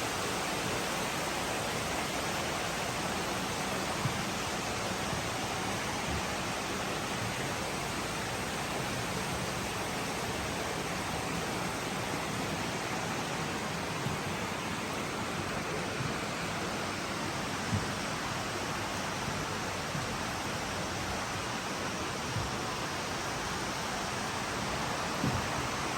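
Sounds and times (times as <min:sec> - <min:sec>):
running water rushing: 0:00.0 - 0:25.9.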